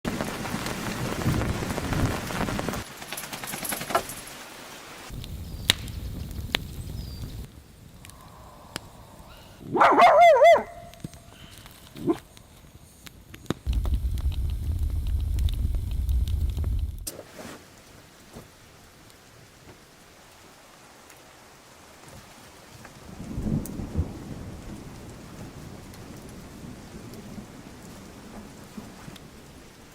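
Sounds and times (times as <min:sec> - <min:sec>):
dog crying: 0:09.7 - 0:10.8
hissing noise: 0:12.0 - 0:17.2
low rumble: 0:13.7 - 0:17.1.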